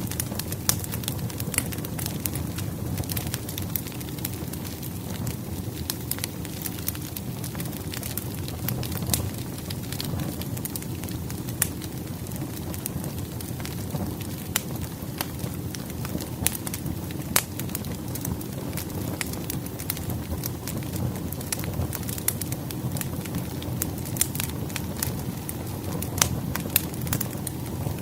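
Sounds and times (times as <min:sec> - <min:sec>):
low rumble of flames: 0:00.0 - 0:28.0
firewood popping and snapping: 0:00.1 - 0:28.0.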